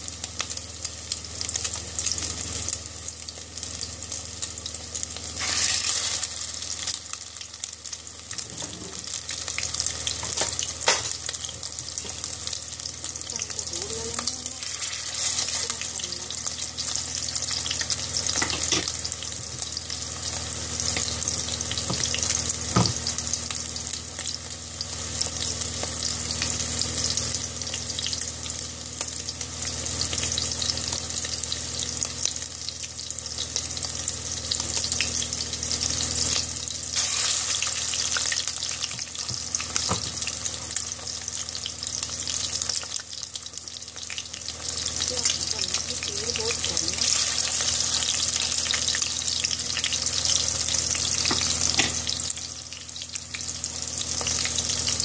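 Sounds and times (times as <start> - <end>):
patties sizzling in oil: 0.0 - 55.0.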